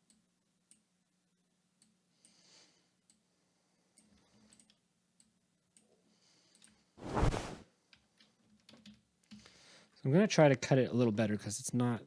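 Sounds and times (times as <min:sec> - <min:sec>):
heavy wing flap whoosh: 0:07.0 - 0:07.6.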